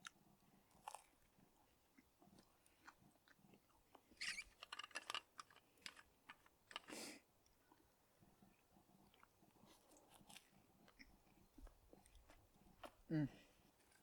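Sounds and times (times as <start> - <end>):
person biting and chewing: 0.7 - 1.2.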